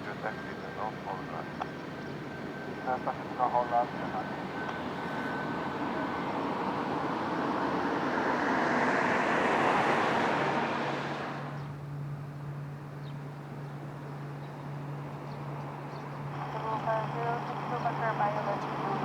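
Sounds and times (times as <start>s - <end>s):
jet airliner passing: 0.0s - 12.0s.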